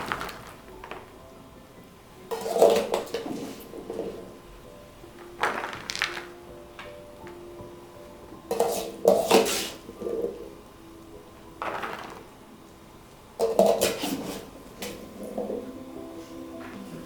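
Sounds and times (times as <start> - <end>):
soft background music: 0.0 - 17.0
dishes and utensils clinking: 2.3 - 4.4, 8.4 - 10.5, 13.4 - 15.7.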